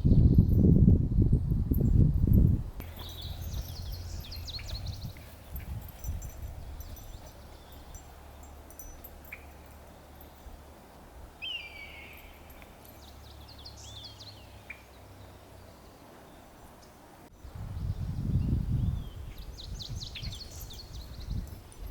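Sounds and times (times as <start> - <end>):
bird calls and chirps: 2.8 - 10.4, 11.4 - 17.0, 17.8 - 21.6.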